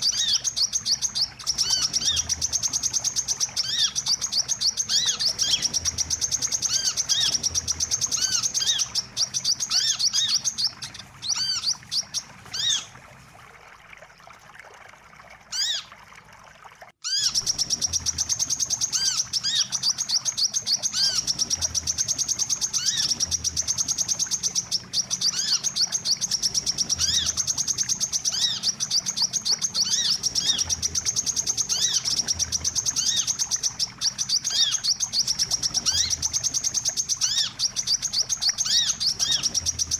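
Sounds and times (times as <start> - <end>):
short arched bird chirps: 17.0 - 21.6.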